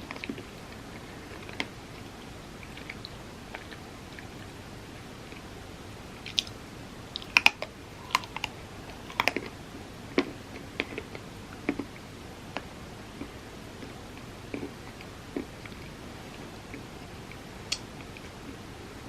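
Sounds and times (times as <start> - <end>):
crunchy eating: 6.2 - 12.0, 13.1 - 18.6.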